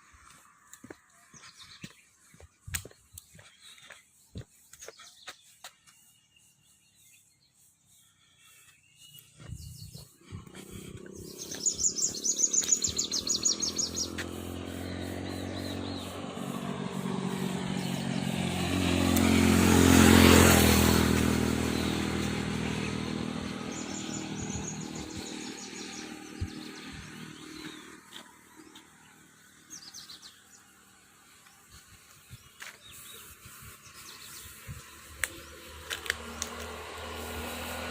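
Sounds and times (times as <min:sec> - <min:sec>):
birds chirping: 0:00.0 - 0:37.9
vehicle engine passing by: 0:09.0 - 0:37.9.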